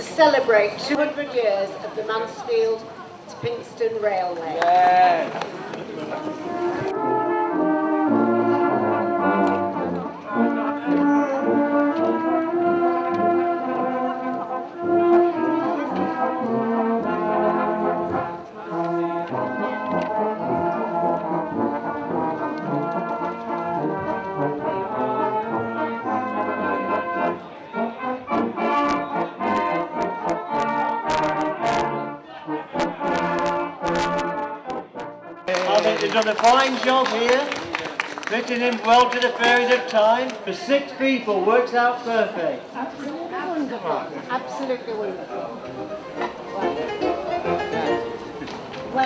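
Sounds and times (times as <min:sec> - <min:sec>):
brass band playing slow tune: 0:05.8 - 0:40.0, 0:45.4 - 0:49.0.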